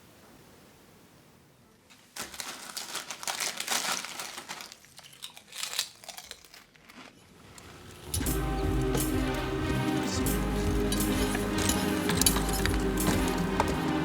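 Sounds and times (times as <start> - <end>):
material crinkling and crunching: 1.9 - 14.0
music: 8.1 - 14.0.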